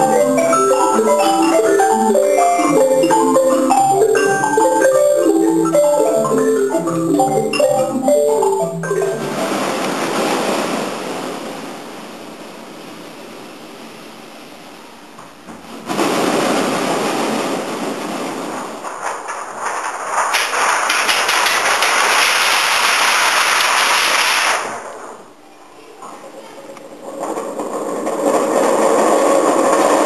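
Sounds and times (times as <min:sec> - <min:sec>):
crackling patter: 0:00.0 - 0:11.4, 0:15.9 - 0:25.2
heavy rain hiss: 0:08.8 - 0:25.4.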